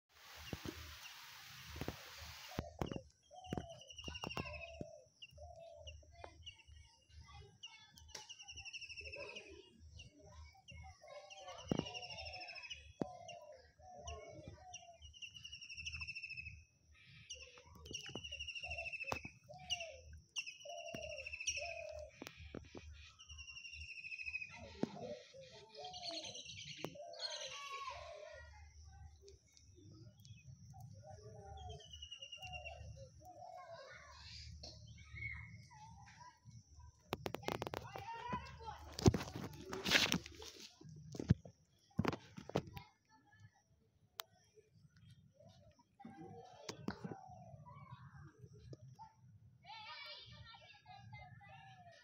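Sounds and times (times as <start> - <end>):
lower bird calls: 0.2 - 6.9, 10.8 - 28.1, 29.5 - 36.3
high bird chirping: 1.8 - 6.8, 17.2 - 28.0, 29.5 - 35.8.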